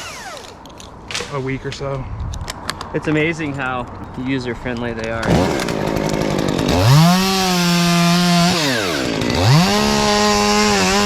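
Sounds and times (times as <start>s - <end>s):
chainsaw revving and cutting wood: 0.0s - 0.6s, 5.2s - 11.0s.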